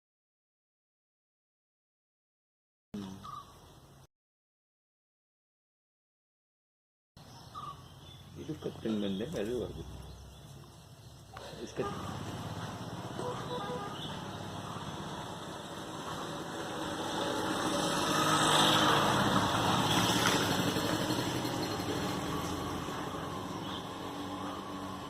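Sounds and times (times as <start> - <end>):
vehicle engine passing by: 8.2 - 25.0.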